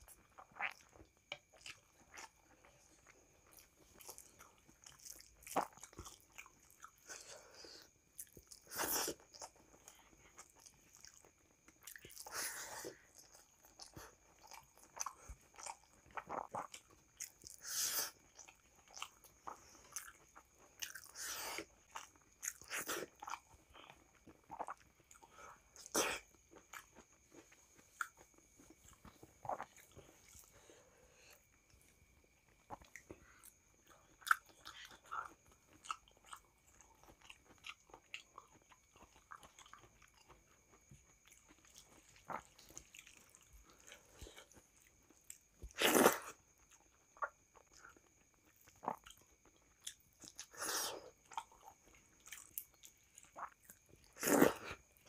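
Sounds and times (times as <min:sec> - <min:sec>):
wet chewing and mouth smacks: 0:00.0 - 0:30.6, 0:31.3 - 0:55.0.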